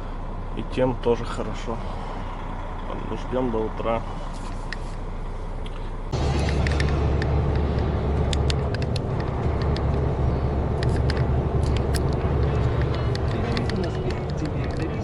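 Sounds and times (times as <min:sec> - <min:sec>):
truck engine and road hum: 0:00.0 - 0:15.0
sharp clicks: 0:06.4 - 0:15.0.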